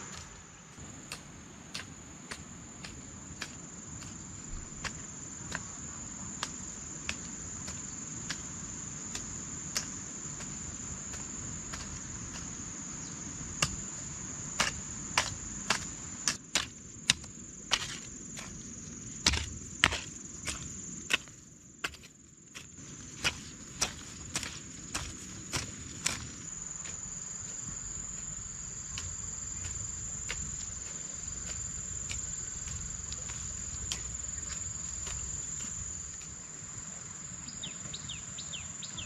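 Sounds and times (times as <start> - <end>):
insects trilling: 0.0 - 39.0
hand tool chopping strikes: 13.6 - 13.8.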